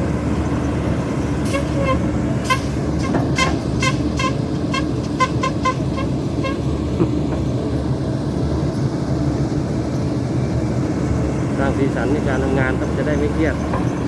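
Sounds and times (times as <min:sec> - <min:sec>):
diesel engine running: 0:00.0 - 0:14.0
vehicle horn short beeps: 0:01.5 - 0:06.7.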